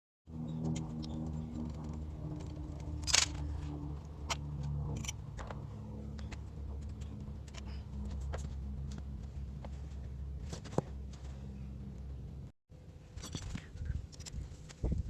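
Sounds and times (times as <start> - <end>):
motorcycle engine running: 0.3 - 12.5.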